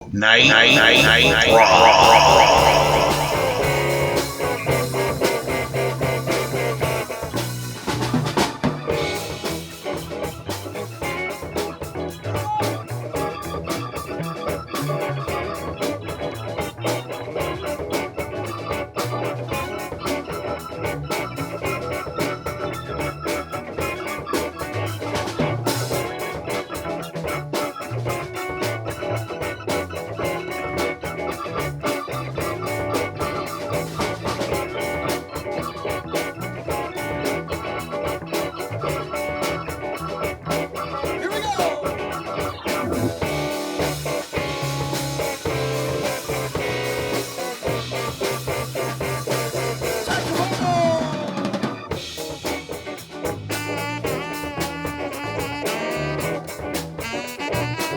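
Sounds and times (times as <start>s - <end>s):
organ: 0.0s - 57.0s
guitar: 0.0s - 57.9s
drums with steady beat: 3.3s - 10.8s, 31.6s - 57.9s.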